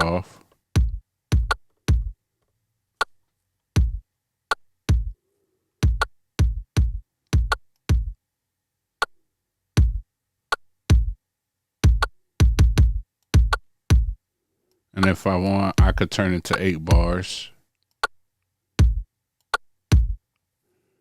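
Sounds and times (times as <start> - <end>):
electronic kick drum loop: 0.8 - 2.2, 3.8 - 4.0, 4.8 - 5.2, 5.8 - 8.2, 9.8 - 10.1, 10.9 - 11.2, 11.8 - 14.2, 15.0 - 17.3, 18.8 - 19.1, 19.9 - 20.2.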